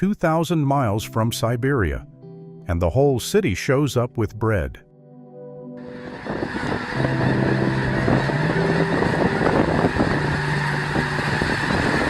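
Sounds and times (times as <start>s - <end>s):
flock of water birds calling: 5.8s - 12.0s.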